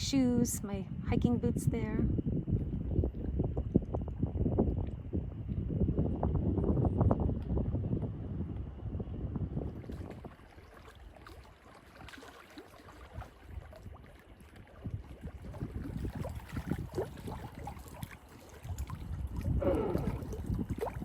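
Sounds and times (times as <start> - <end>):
wind rumble: 0.0 - 11.6, 13.1 - 21.0
water splashing and lapping: 9.4 - 21.0
paddle dipping in water: 9.5 - 21.0.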